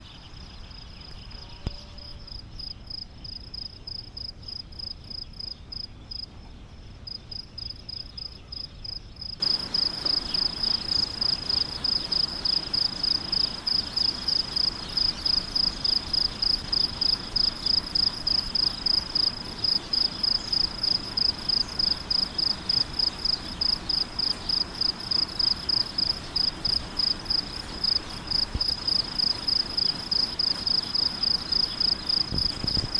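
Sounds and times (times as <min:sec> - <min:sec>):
cricket chirping: 0:00.0 - 0:06.4, 0:07.0 - 0:32.9
steady hiss: 0:09.4 - 0:32.9.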